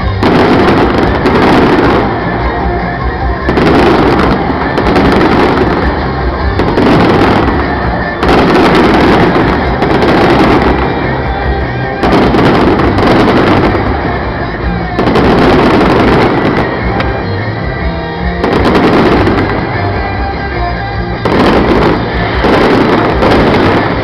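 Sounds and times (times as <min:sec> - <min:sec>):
fireworks sharp bangs: 0:00.0 - 0:24.0.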